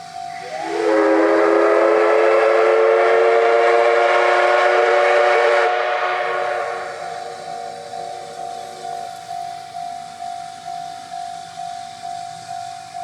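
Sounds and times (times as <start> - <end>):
steam locomotive whistle: 0.0 - 8.4.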